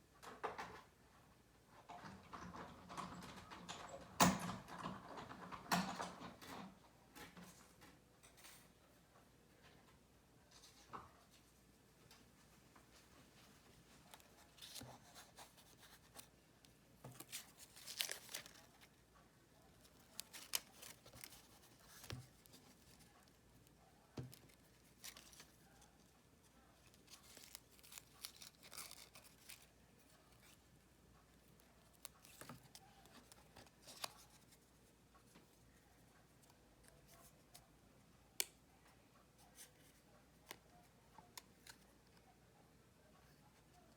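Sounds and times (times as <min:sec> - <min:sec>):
paper rustling: 0:12.8 - 0:19.0, 0:19.6 - 0:30.7, 0:31.3 - 0:37.6.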